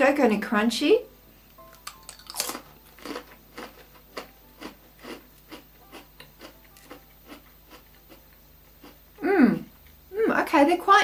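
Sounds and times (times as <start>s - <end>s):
person crunching a cracker: 1.8s - 8.2s.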